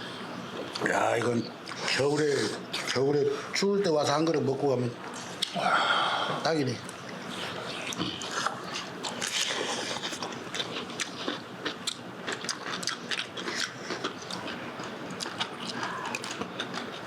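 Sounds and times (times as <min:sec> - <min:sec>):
person chewing with crunches: 0:07.4 - 0:17.0.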